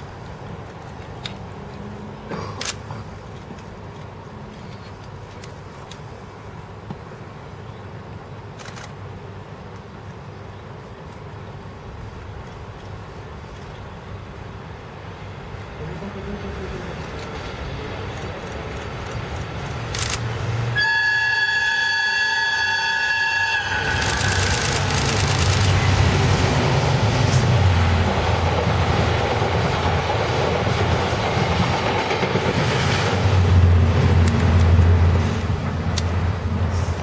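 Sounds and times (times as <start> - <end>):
train wheels rumbling on rails: 15.5 - 37.0
locomotive horn: 20.8 - 24.6.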